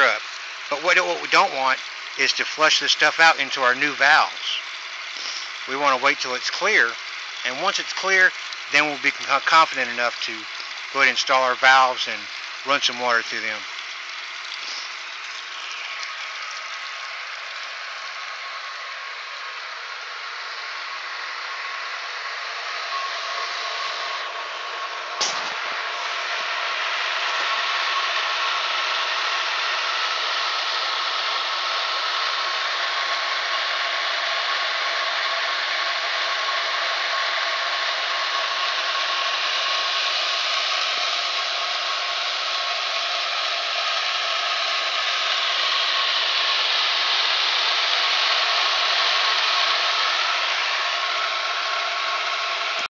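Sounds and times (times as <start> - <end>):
faint pump whine: 0.0 - 52.9
water rushing from a pipe: 0.0 - 52.9.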